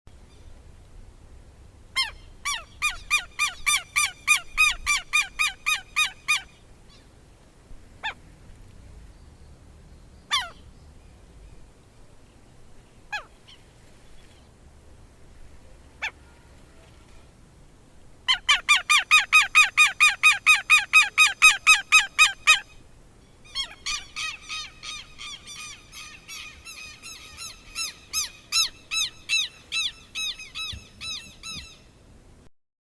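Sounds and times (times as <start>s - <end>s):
lapwing calling harsh notes: 1.9s - 7.1s, 10.3s - 10.6s, 18.3s - 32.0s.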